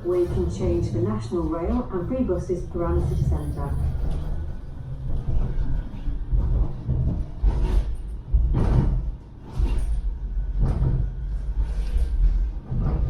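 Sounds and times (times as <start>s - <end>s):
tram rumbling along track: 0.0s - 13.0s.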